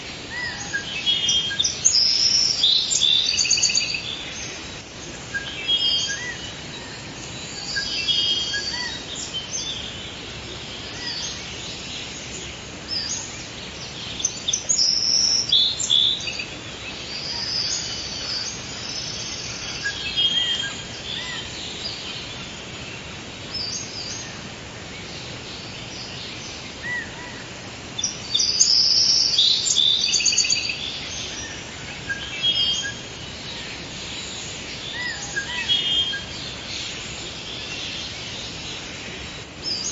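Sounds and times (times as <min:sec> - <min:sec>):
birds chirping and singing: 0:00.0 - 0:39.9
faint background hiss: 0:00.0 - 0:39.9.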